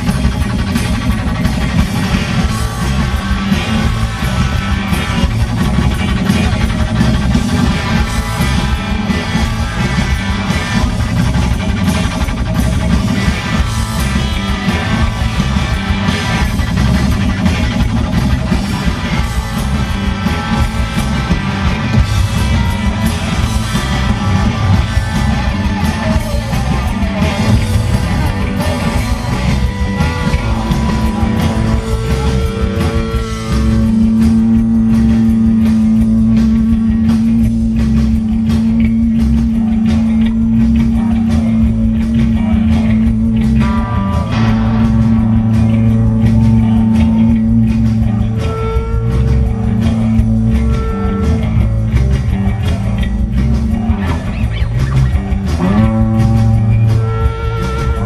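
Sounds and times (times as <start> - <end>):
rock band playing: 0.0 - 58.0.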